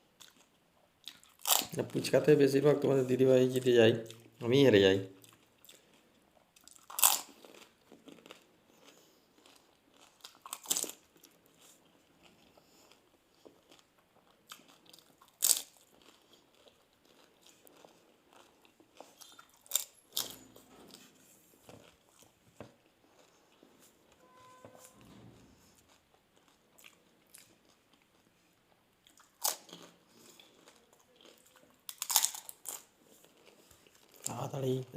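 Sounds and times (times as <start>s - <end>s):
quiet chewing: 0.2s - 1.7s, 5.1s - 34.4s
crisp shells crunching: 31.3s - 34.2s.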